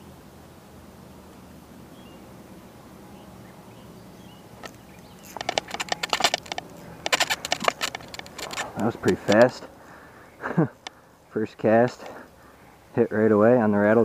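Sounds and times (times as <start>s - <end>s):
faint background hum: 0.0s - 14.0s
fishing reel clicking: 4.6s - 9.6s.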